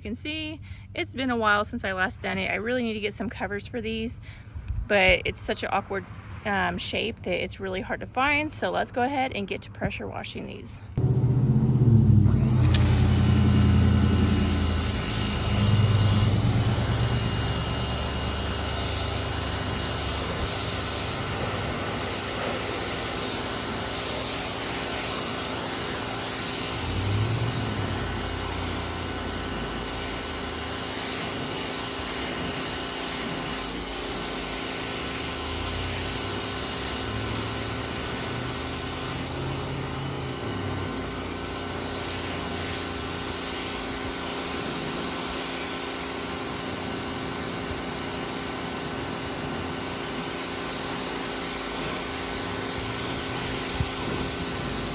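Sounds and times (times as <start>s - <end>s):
high-pressure water jet hissing: 11.0s - 54.9s
pressure washer motor hum: 11.0s - 54.9s.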